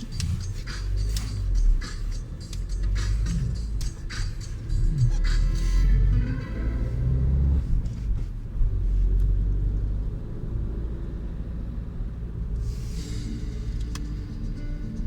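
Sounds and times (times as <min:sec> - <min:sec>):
diesel engine idling: 0:00.0 - 0:08.6, 0:11.8 - 0:15.0.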